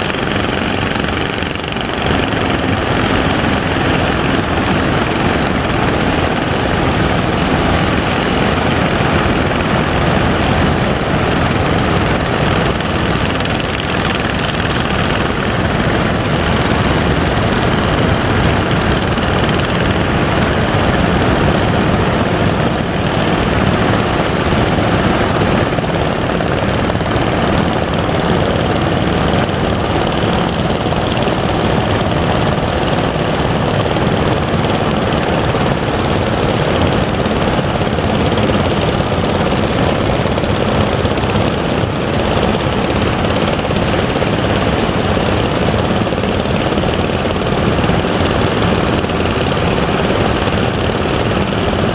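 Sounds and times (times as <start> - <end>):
boat engine running: 0.0 - 51.9
surf and wind noise: 0.0 - 51.9.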